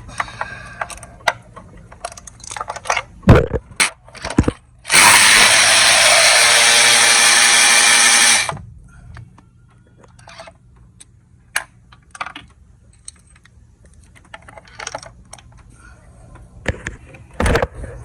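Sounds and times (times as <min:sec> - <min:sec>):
power tool running: 0:04.9 - 0:08.6.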